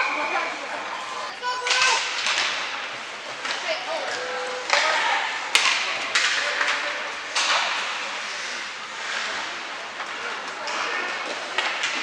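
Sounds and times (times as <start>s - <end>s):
stick and puck cracks echoing: 1.6s - 3.6s, 4.6s - 8.2s.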